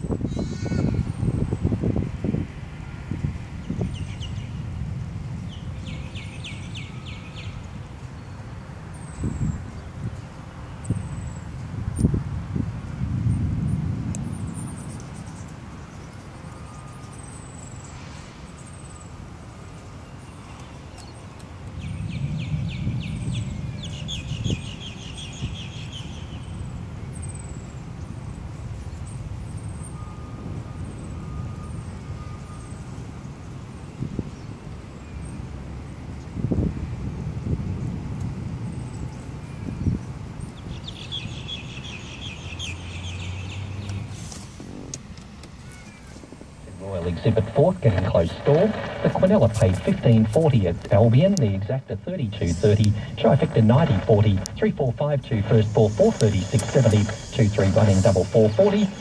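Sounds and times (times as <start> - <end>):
wind rumble on microphone: 0.0 - 17.8, 20.8 - 51.1
birds chirping: 3.6 - 12.1, 14.3 - 33.4, 38.6 - 44.2, 45.0 - 59.0
bird chirping: 20.0 - 27.8, 39.9 - 44.1
low rumble: 46.7 - 59.0.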